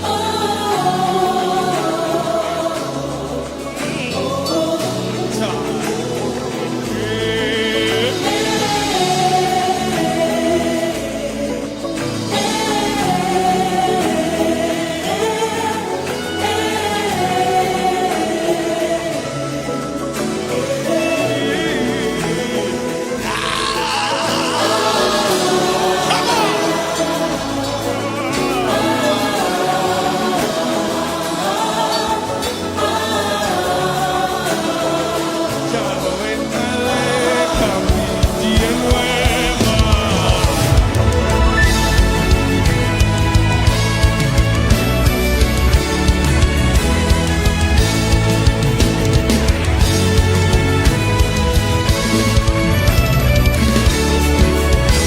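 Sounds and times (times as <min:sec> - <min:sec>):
choir singing: 0:00.0 - 0:52.4
lead singer: 0:00.0 - 0:52.7
full band playing: 0:20.9 - 0:30.4.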